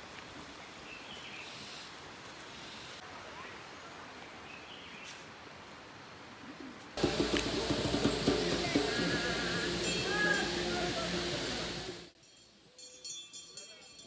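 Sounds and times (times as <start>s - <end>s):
steady hiss: 7.0s - 12.2s.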